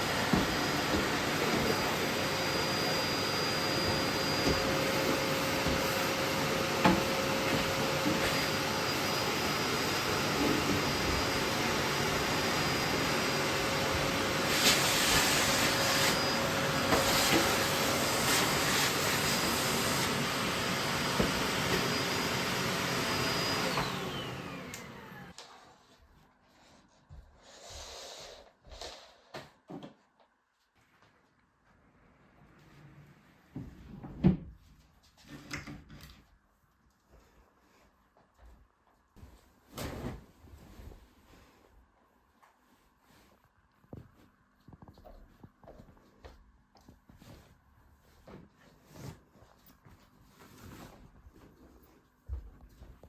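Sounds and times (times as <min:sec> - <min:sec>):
vacuum cleaner running: 0:00.0 - 0:25.4
vacuum motor winding down: 0:18.9 - 0:25.4.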